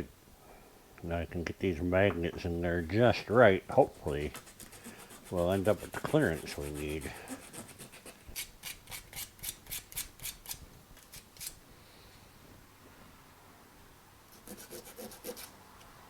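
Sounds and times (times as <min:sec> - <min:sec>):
abrasive scrubbing on metal: 0:03.8 - 0:08.0.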